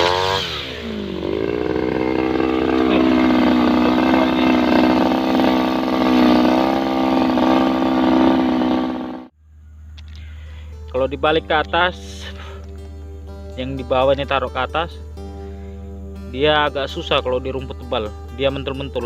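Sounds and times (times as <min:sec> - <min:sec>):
brush cutter engine running: 0:00.0 - 0:09.3.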